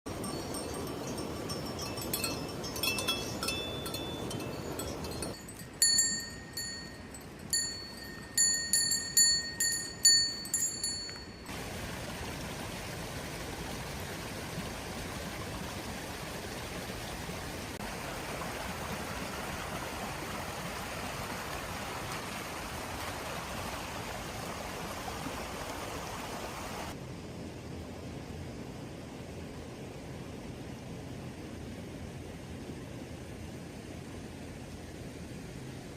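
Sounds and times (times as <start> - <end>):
bell-like chimes: 0.1 - 11.6
rain hiss: 0.1 - 35.9.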